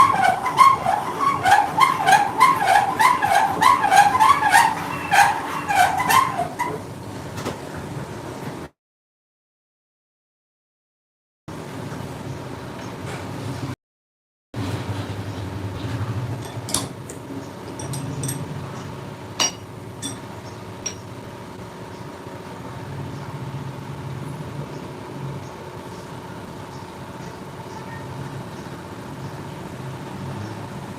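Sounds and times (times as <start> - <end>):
sharp metallic clinks: 17.6 - 18.6, 19.4 - 21.1.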